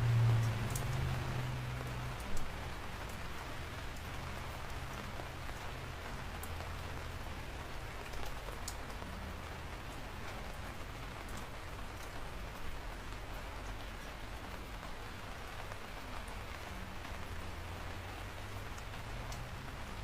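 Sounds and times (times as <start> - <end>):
steady rain hiss: 0.0 - 20.0
sharp drip ticks: 0.2 - 1.1, 1.7 - 3.2, 6.4 - 6.8, 8.0 - 9.2, 18.6 - 20.0.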